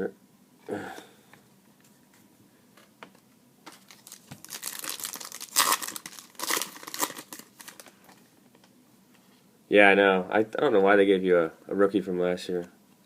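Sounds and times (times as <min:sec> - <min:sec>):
card pack wrapper tearing: 0:03.7 - 0:07.9
loud ripping: 0:03.8 - 0:07.8.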